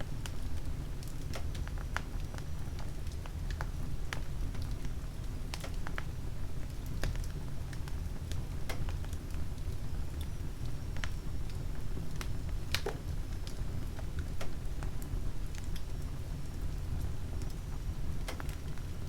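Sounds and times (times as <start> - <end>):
wood fire crackling: 6.8 - 19.0.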